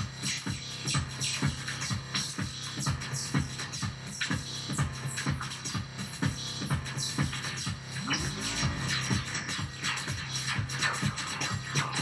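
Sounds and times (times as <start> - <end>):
electronic drum beat: 0.0 - 12.0.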